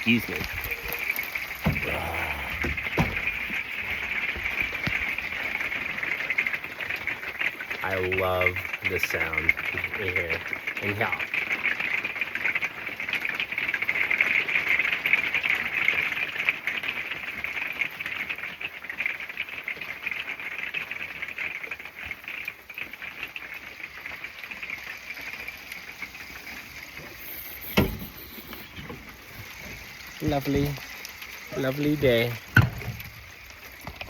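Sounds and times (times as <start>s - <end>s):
hail pattering on shield: 0.0s - 34.0s
sharp knock: 27.8s - 28.0s.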